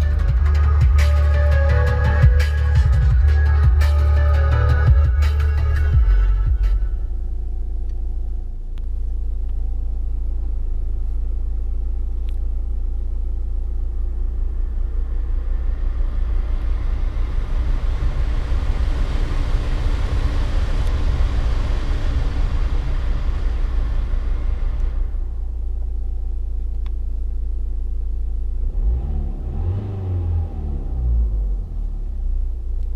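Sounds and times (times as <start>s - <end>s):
diesel car engine rumbling: 0.0s - 32.9s.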